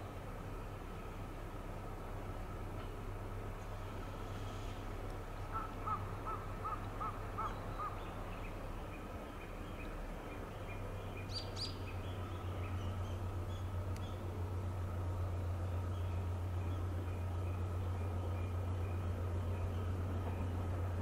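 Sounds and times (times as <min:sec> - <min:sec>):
freight train rumbling: 0:00.0 - 0:21.0
bird calling: 0:05.4 - 0:14.3.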